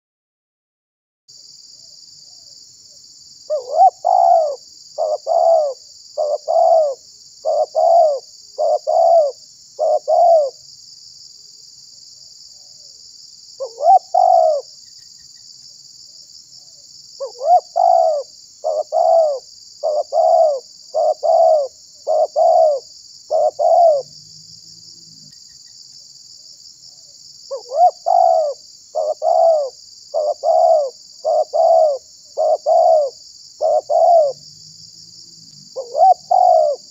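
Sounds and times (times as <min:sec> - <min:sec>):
dove cooing: 0:03.5 - 0:10.6, 0:13.6 - 0:14.7, 0:17.2 - 0:24.1, 0:27.5 - 0:34.4, 0:35.8 - 0:36.9.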